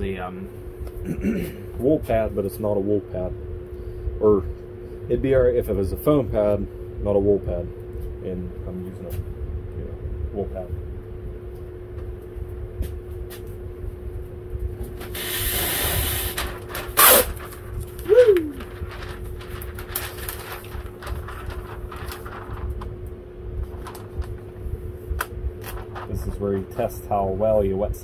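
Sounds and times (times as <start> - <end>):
steady hum: 0.0 - 28.0
tape pulling off roll: 15.0 - 22.3
tape ripping: 15.0 - 22.5.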